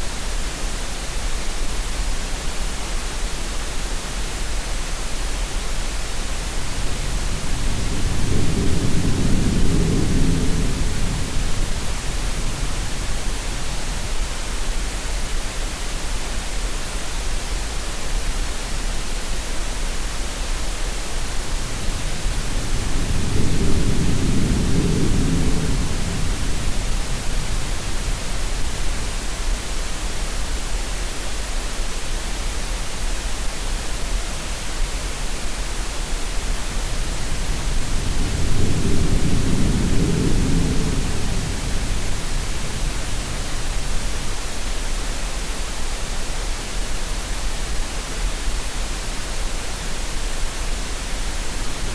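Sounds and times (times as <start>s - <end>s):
steady noise hiss: 0.0s - 51.9s
sea waves rumbling: 21.5s - 28.5s, 36.8s - 44.7s.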